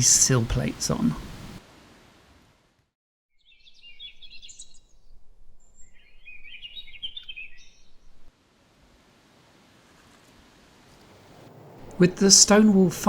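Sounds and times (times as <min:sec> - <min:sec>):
faint outdoor background noise: 0:00.0 - 0:02.9, 0:04.4 - 0:13.0
songbird warbling: 0:03.4 - 0:08.3.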